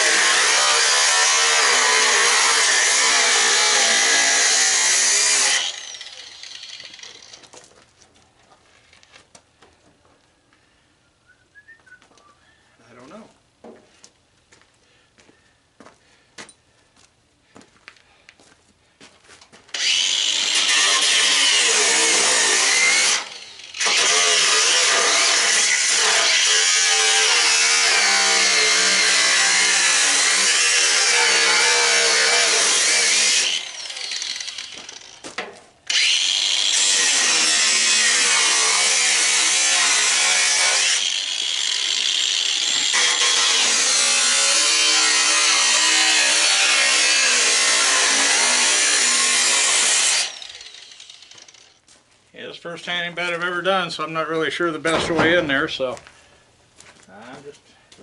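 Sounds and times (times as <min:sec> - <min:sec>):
electric cutting tool cutting: 0:00.0 - 0:07.5, 0:19.7 - 0:35.3, 0:35.9 - 0:51.8.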